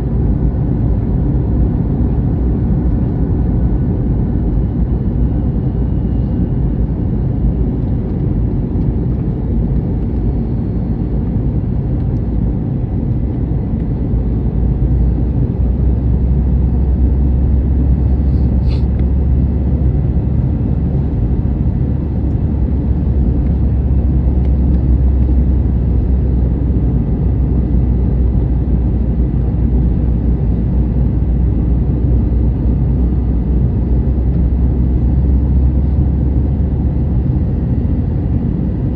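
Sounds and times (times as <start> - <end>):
aircraft cabin engine rumble: 0.0 - 38.9.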